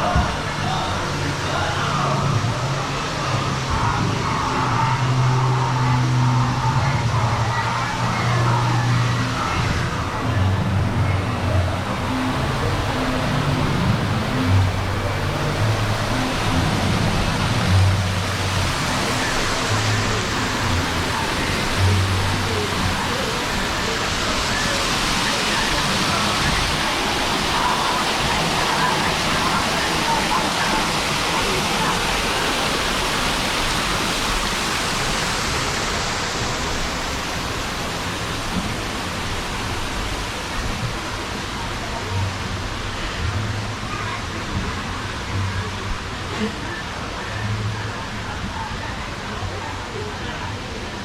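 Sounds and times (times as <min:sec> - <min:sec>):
music with bass notes: 0:00.0 - 0:27.4
rushing water: 0:00.0 - 0:51.0.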